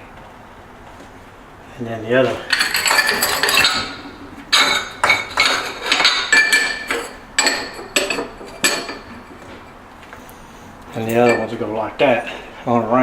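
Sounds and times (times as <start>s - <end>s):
ceramic tiles clinking: 2.4s - 9.8s, 10.9s - 11.6s.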